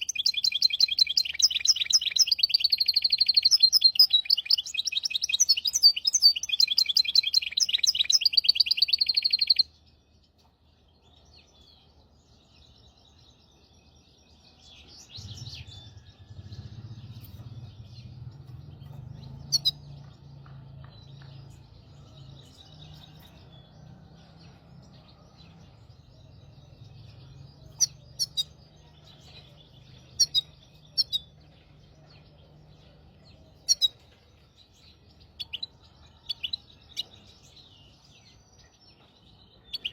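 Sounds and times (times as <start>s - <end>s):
finch trilling song: 0.0s - 9.8s, 14.5s - 24.7s, 25.6s - 34.2s
bird twitters and chirps: 0.0s - 39.9s.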